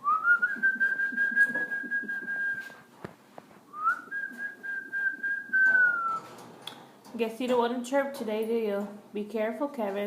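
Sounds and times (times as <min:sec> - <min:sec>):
person whistling long notes: 0:00.0 - 0:02.8, 0:03.7 - 0:06.2.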